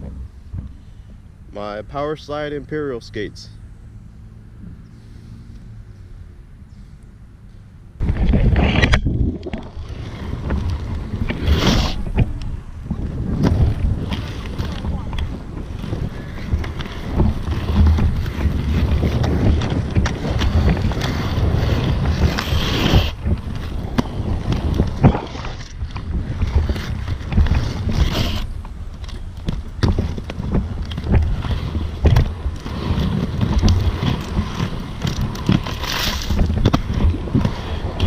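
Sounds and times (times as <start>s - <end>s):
skate wheels rolling on pavement: 0.0s - 38.0s
wind buffeting microphone: 7.8s - 38.0s.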